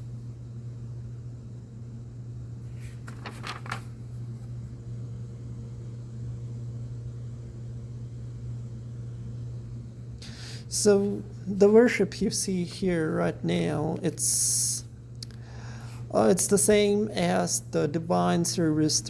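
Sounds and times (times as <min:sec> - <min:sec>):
steady low hum: 0:00.0 - 0:19.0
pages rustling: 0:02.7 - 0:04.5.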